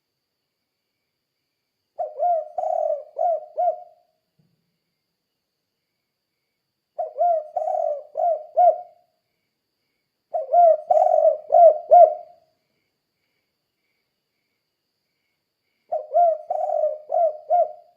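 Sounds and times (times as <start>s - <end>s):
dove cooing: 2.0s - 4.0s, 7.0s - 9.0s, 10.3s - 12.4s, 15.9s - 17.9s.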